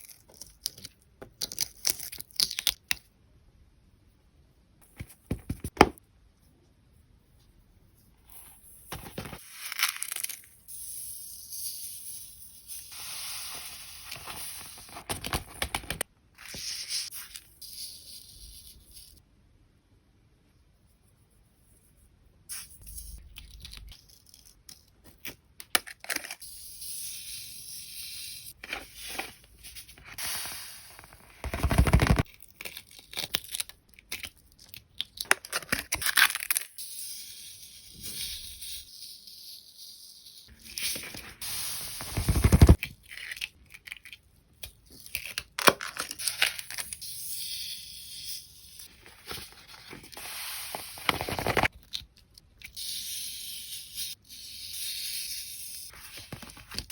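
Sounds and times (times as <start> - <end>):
sand and paper rustling: 12.9 - 17.6, 28.6 - 32.3, 40.8 - 42.8, 48.9 - 51.7.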